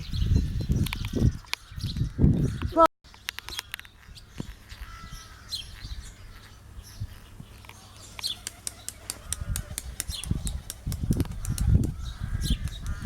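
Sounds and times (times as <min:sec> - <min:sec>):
low wind rumble: 0:00.0 - 0:02.8, 0:09.3 - 0:13.0
birds chirping: 0:00.0 - 0:13.0.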